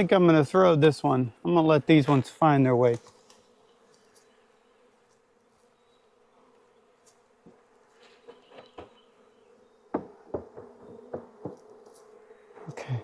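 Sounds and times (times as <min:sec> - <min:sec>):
bees buzzing: 0:00.0 - 0:13.0
sharp knocks: 0:09.9 - 0:11.6.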